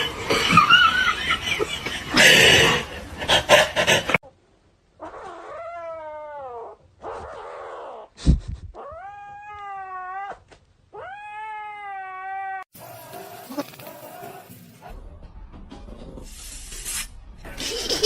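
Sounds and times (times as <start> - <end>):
cat yowling: 8.8 - 12.7.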